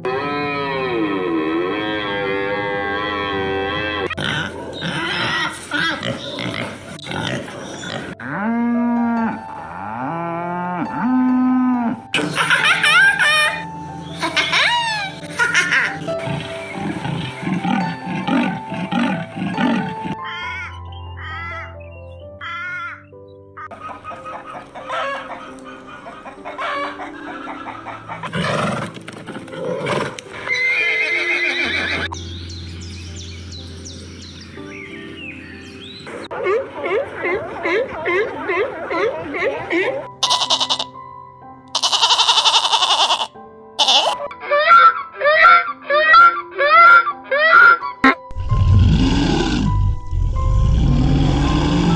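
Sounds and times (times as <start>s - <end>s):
loud animal calls: 0.0s - 8.2s, 12.2s - 21.8s, 22.4s - 32.2s, 41.8s - 51.9s
cattle mooing: 0.0s - 12.1s, 16.1s - 20.2s, 48.0s - 51.9s
high rising calls: 30.4s - 36.8s, 48.3s - 51.9s
high chirps: 32.1s - 36.3s.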